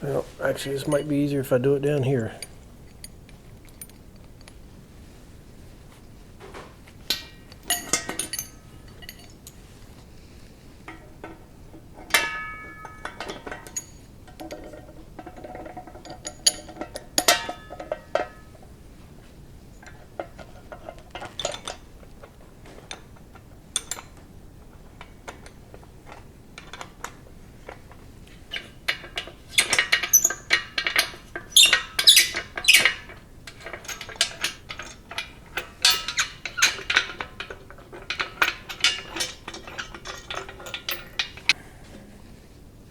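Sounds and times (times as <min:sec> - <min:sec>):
metal parts clinking and knocking: 0:00.7 - 0:01.2, 0:07.0 - 0:09.6, 0:10.9 - 0:18.6, 0:19.8 - 0:41.6.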